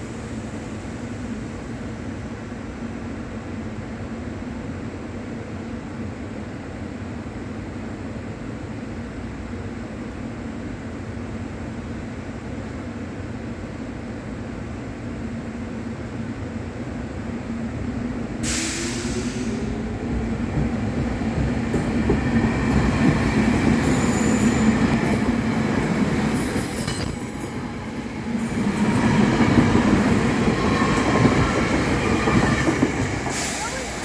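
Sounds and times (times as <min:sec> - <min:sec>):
train wheels rumbling on rails: 0:17.5 - 0:34.0.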